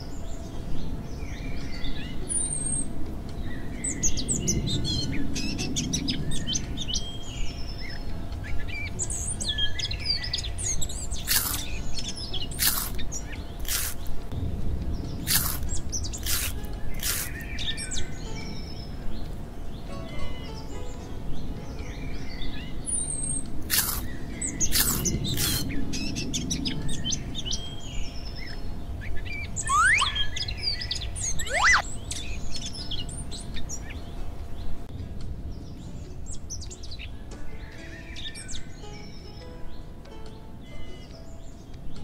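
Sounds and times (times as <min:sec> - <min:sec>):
bird chirps: 0:03.8 - 0:14.2, 0:15.1 - 0:19.2, 0:19.8 - 0:34.0
rising whistles: 0:29.5 - 0:31.9.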